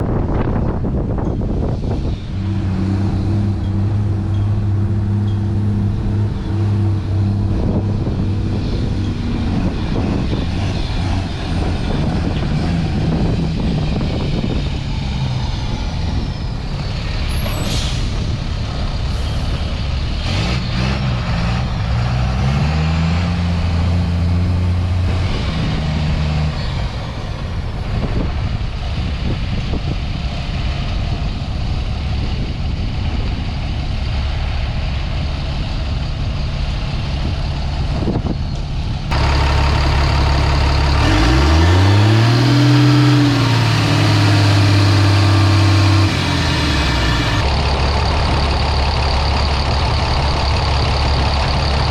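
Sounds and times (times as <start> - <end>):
diesel truck engine running: 0.0 - 51.9
air brakes hissing: 15.6 - 19.8.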